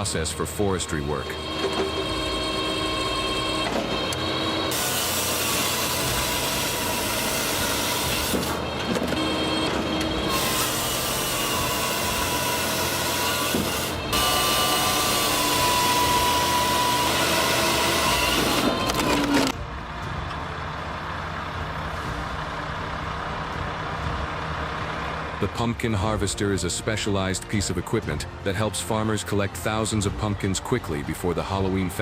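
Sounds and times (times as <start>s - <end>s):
firewood processor running: 0.0s - 25.4s.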